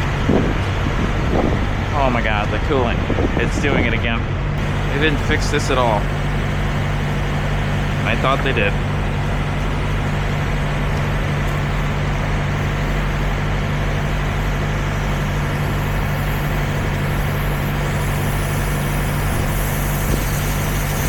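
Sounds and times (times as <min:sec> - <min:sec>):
diesel truck engine idling: 0:04.6 - 0:21.0.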